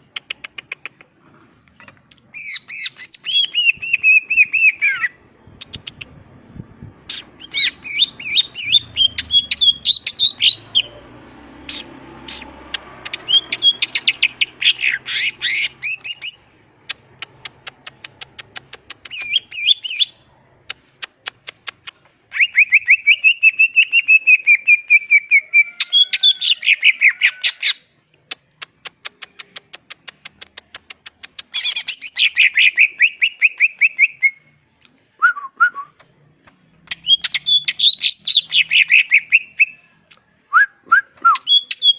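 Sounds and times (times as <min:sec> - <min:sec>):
bird singing chirps and trills: 0:07.1 - 0:20.2, 0:36.8 - 0:39.8, 0:41.4 - 0:41.9.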